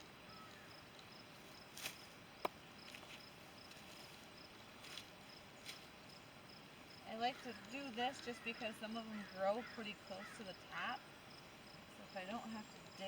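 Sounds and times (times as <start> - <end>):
cricket chirping: 0.3 - 13.0
soft rustles: 1.3 - 2.2, 2.9 - 5.9.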